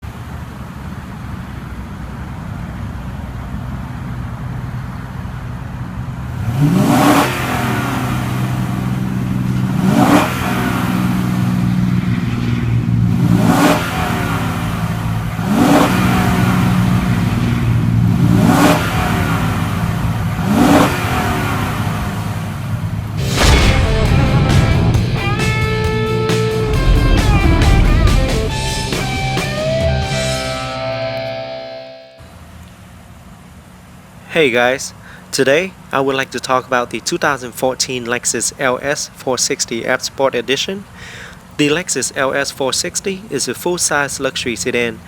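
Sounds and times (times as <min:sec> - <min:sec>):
car engine idling and revving: 0:00.0 - 0:31.6.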